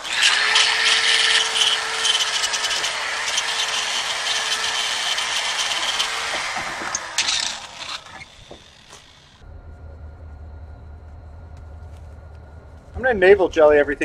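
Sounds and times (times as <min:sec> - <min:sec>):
power tool scraping rust off metal: 0:00.0 - 0:09.4
motor whine: 0:00.0 - 0:13.0.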